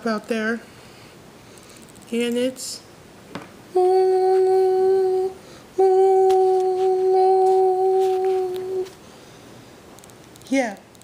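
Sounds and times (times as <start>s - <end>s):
person breathing: 0.7s - 1.9s, 5.4s - 5.8s
person humming: 3.7s - 9.0s.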